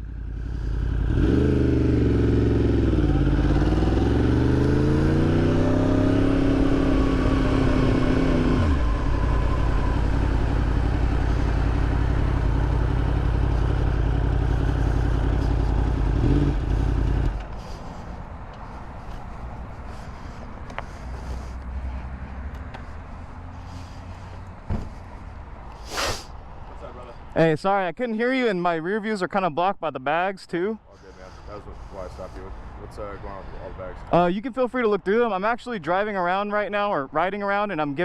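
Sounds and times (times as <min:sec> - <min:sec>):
motorcycle engine revving: 0:00.0 - 0:18.2
wind and road noise: 0:00.0 - 0:38.0.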